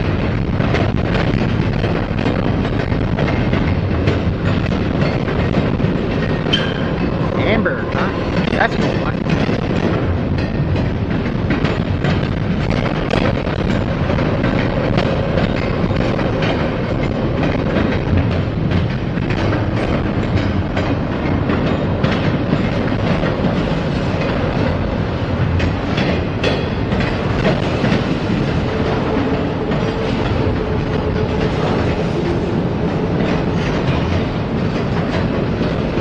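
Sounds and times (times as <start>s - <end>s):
freight train rolling past: 0.0s - 36.0s
wheels clicking over rail joints: 0.0s - 36.0s.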